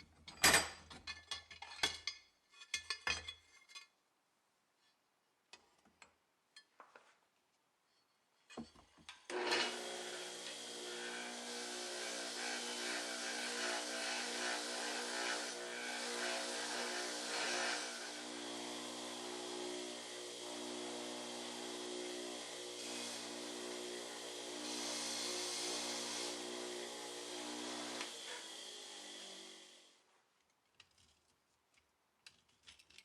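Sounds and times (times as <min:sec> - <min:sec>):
electric power tool running: 0:09.3 - 0:29.9.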